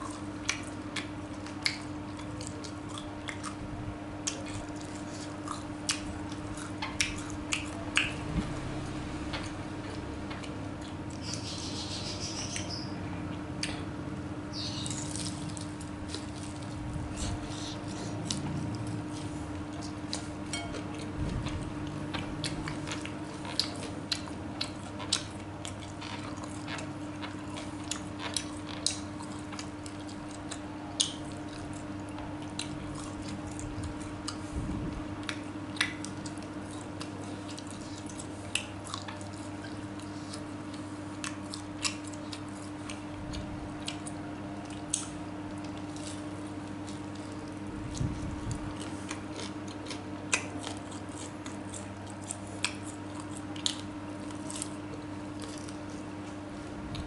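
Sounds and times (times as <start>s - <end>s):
person chewing: 0.0s - 11.5s, 14.6s - 57.0s
steady low hum: 0.0s - 57.0s.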